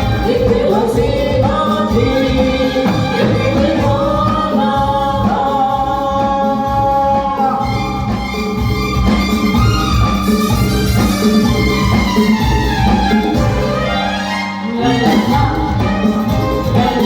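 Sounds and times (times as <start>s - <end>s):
gliding melody line: 0.0s - 17.0s.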